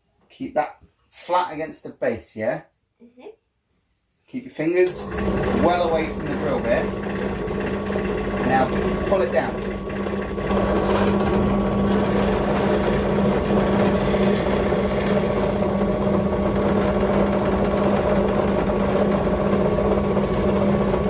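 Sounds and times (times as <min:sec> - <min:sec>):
drill bit boring wood: 0:04.8 - 0:21.0
drill press motor humming: 0:04.9 - 0:21.0.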